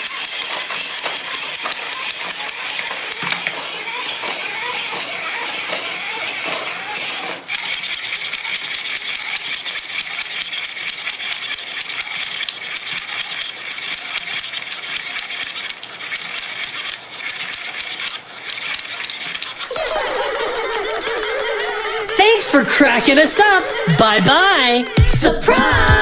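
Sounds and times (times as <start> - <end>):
jingling rattle of small clicks: 7.6 - 19.7.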